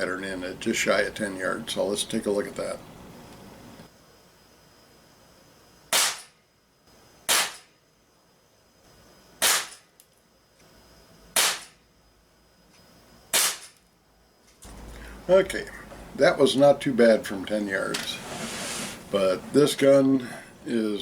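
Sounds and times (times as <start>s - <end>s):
pellet pistol shots cracking: 5.9s - 6.3s, 7.3s - 7.7s, 9.4s - 9.8s, 11.4s - 11.8s, 13.3s - 13.8s.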